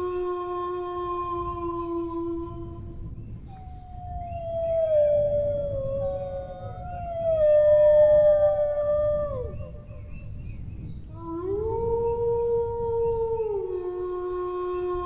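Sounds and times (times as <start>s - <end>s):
dogs howling: 3.4s - 10.1s.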